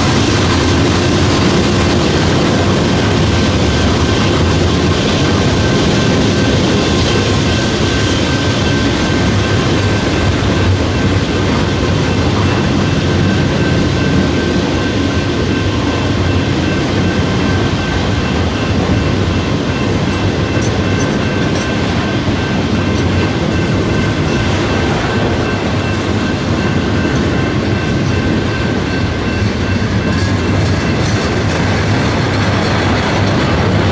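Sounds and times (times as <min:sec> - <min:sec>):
train wheels rumbling on rail: 0:00.0 - 0:33.9.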